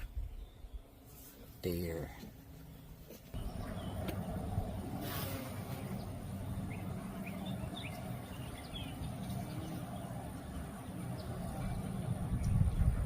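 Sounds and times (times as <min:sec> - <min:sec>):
songbirds chirping: 0:00.0 - 0:13.0
steady low rumble: 0:05.6 - 0:13.0.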